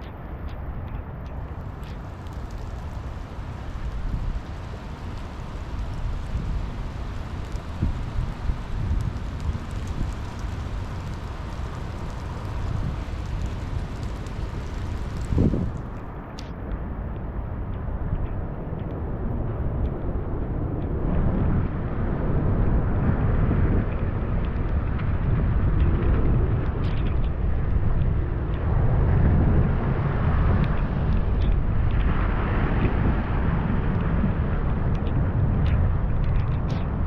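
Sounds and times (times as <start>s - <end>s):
steady rain falling: 1.2s - 16.5s.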